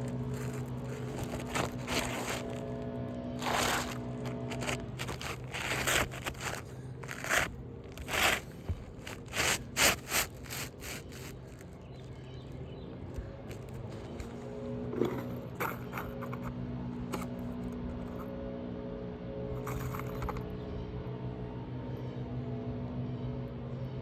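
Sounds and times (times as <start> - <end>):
roofing shingles scraping: 0.0 - 12.2.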